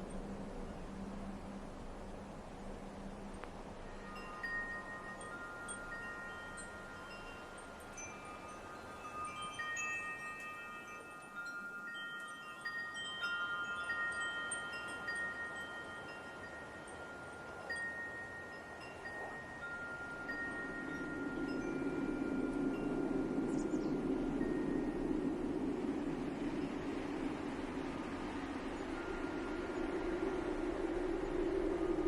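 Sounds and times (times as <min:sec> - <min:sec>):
light wind hiss: 0:00.0 - 0:32.0
wind chimes ringing: 0:03.8 - 0:32.0.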